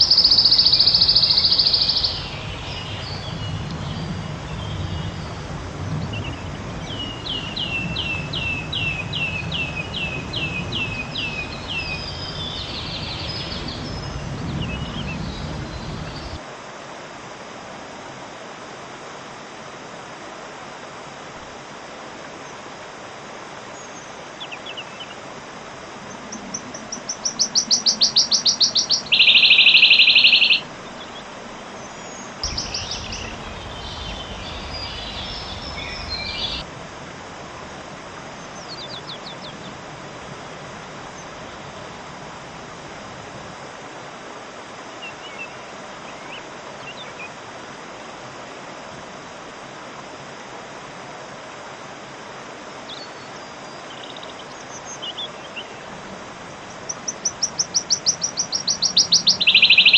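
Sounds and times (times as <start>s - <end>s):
bird singing with trill: 0.0s - 5.4s, 6.0s - 16.4s, 26.1s - 31.2s, 31.8s - 36.6s, 38.6s - 39.6s, 56.8s - 59.9s
low background rumble: 32.4s - 38.5s.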